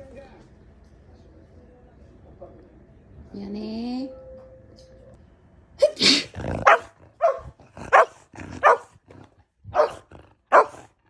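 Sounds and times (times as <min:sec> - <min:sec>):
person sneezing: 0:05.8 - 0:06.4
dog barking: 0:06.6 - 0:08.9, 0:09.7 - 0:10.9.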